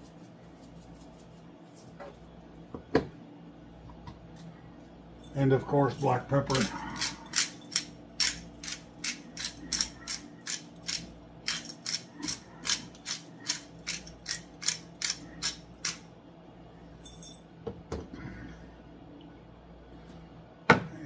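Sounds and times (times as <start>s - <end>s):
pepper grinder clicking: 7.0s - 16.0s.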